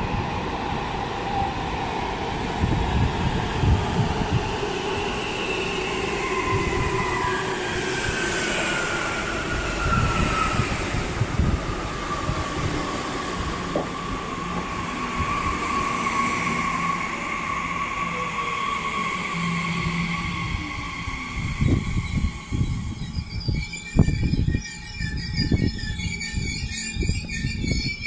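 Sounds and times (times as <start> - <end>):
train wheels rumbling on rails: 1.3 - 16.5
whining tones sliding down: 4.3 - 28.0.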